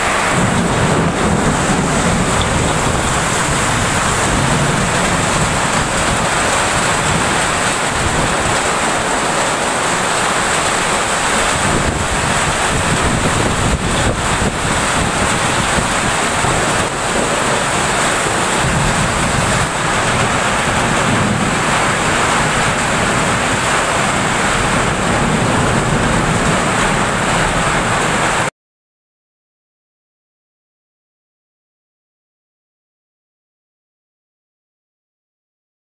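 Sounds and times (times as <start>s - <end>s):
heavy rain pouring: 0.0s - 28.5s
wind buffeting microphone: 0.2s - 28.2s.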